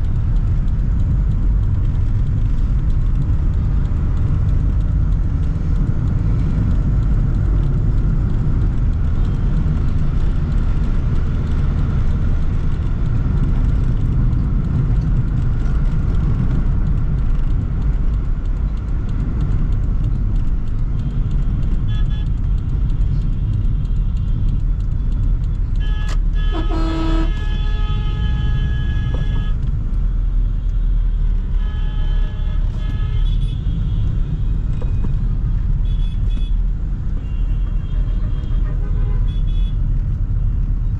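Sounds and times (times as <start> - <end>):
car road and engine rumble: 0.0 - 40.9
vehicle horns honking: 21.8 - 22.4, 25.8 - 29.7, 31.4 - 34.1, 35.8 - 36.6, 37.2 - 39.8.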